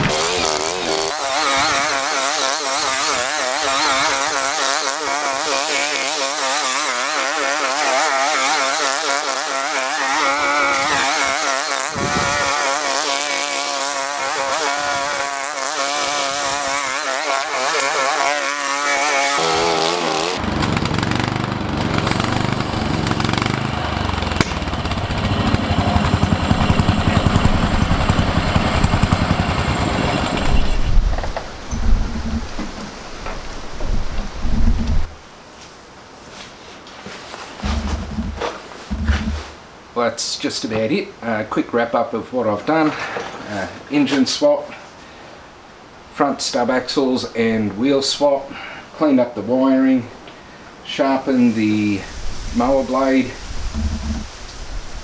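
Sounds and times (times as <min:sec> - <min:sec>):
lawnmower engine running: 0:00.0 - 0:35.2, 0:37.6 - 0:39.6, 0:52.6 - 0:54.4.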